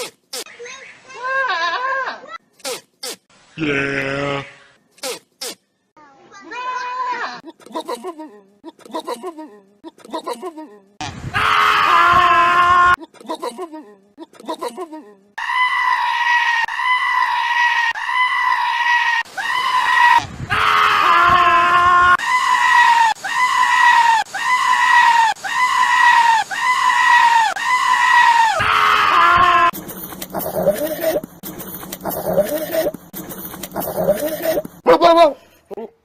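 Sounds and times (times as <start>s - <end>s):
goat bleating: 33.8s - 35.4s.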